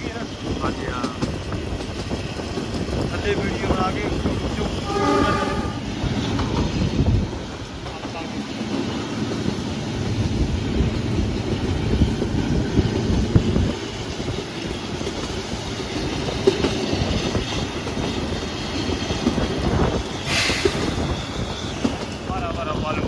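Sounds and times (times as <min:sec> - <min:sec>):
train wheels clattering: 0:00.0 - 0:10.2, 0:10.8 - 0:22.3
hiss burst: 0:20.2 - 0:21.1.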